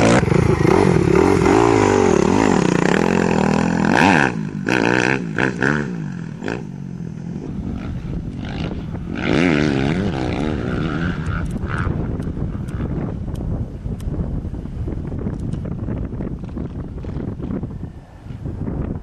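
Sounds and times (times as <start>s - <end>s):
motocross bike engines revving: 0.0s - 13.2s.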